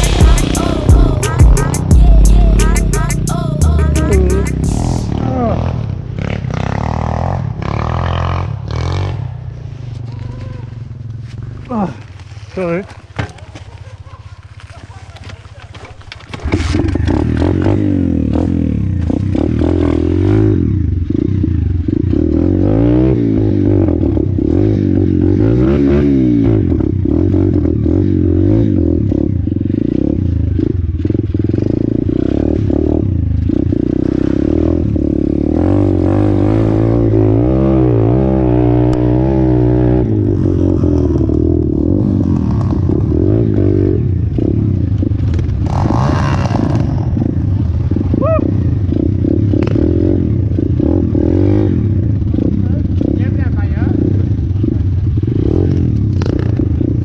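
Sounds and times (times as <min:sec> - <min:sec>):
pit bike engine revving: 0:31.4 - 0:53.2.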